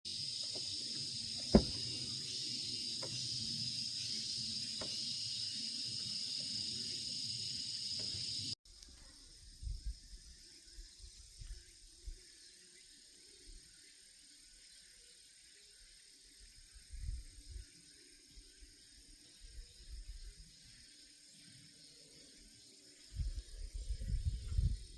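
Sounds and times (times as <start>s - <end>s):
insects chorus: 0.1s - 24.9s
low thumps: 1.5s - 1.9s.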